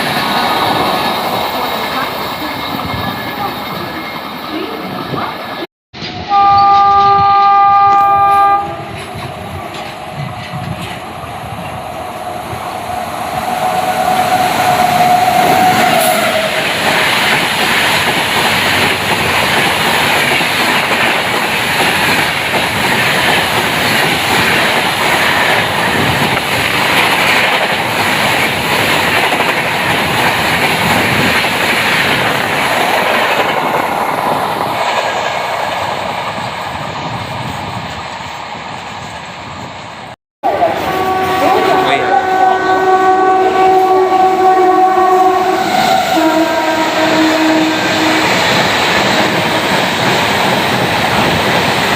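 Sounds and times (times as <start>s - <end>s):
train coaches rattling past: 0.0s - 51.9s
train horn: 6.2s - 9.1s, 13.5s - 16.7s, 40.4s - 49.9s.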